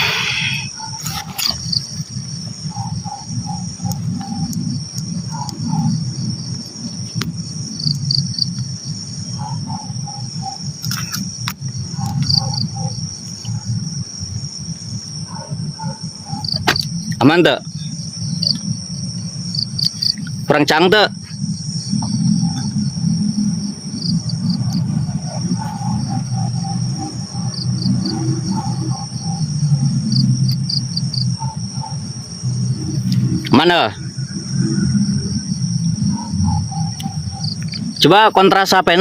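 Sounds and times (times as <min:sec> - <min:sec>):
animal calling low notes: 0:00.0 - 0:01.0
crickets trilling: 0:00.0 - 0:39.0.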